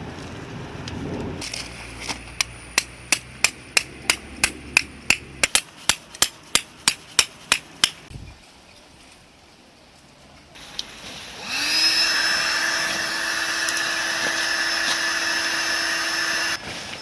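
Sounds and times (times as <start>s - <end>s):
hammer striking tent peg: 2.0s - 8.1s.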